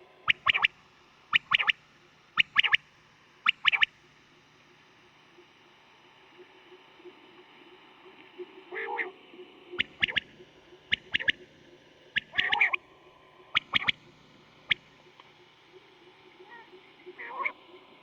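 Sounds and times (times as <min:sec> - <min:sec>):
quail calling: 0:00.3 - 0:00.7, 0:01.3 - 0:01.8, 0:02.4 - 0:02.8, 0:03.4 - 0:03.9, 0:09.8 - 0:10.3, 0:10.9 - 0:11.4, 0:12.2 - 0:12.8, 0:13.6 - 0:14.0, 0:16.4 - 0:17.6.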